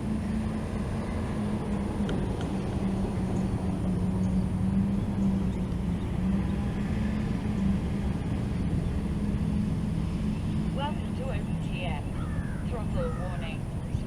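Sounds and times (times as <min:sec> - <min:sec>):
quadcopter motors buzzing: 0:00.0 - 0:14.0.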